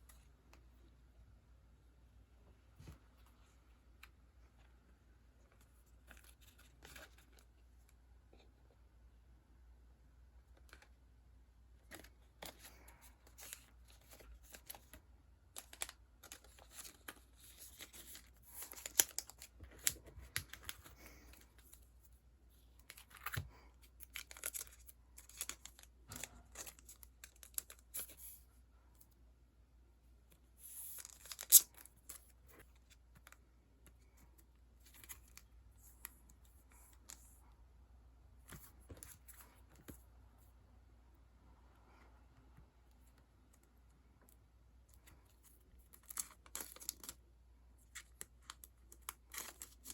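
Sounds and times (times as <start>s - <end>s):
sticker packaging crinkling: 11.8s - 21.9s, 22.8s - 28.4s, 45.2s - 47.2s, 47.8s - 49.9s.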